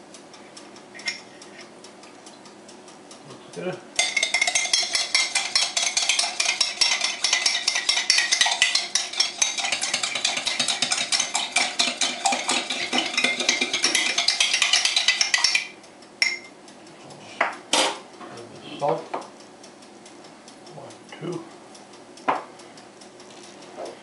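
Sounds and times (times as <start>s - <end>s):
fork beating eggs: 4.0s - 16.4s.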